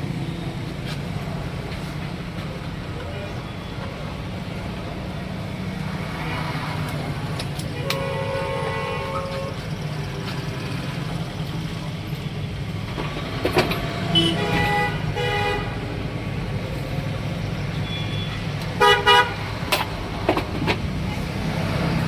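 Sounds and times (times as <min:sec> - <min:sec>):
road traffic: 0:00.0 - 0:22.0
vehicle horns honking: 0:07.6 - 0:09.9, 0:14.0 - 0:15.9, 0:17.8 - 0:19.6.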